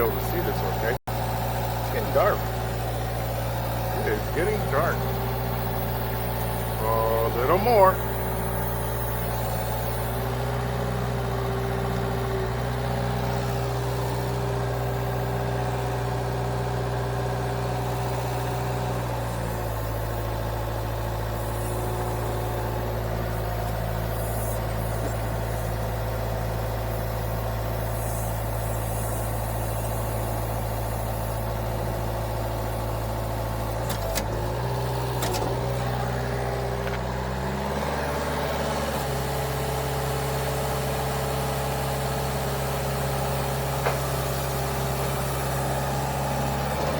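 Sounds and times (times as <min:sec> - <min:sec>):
machine engine running: 0:00.0 - 0:16.1, 0:30.6 - 0:46.9.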